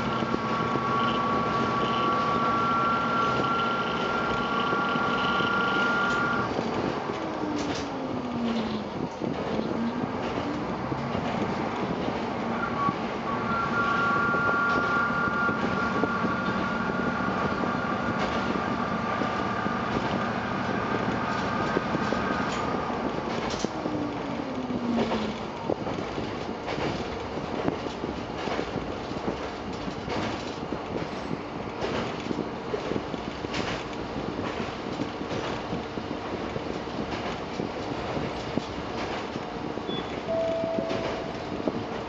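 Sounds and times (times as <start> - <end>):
railcar running drone: 0.0 - 42.0
wheels clicking over track: 0.0 - 42.0
brief falling tone: 39.9 - 41.6.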